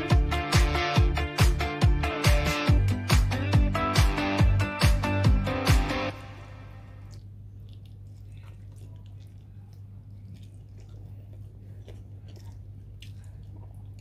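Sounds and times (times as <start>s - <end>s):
steady low hum: 0.0s - 14.0s
person chewing with wet smacking: 7.0s - 14.0s.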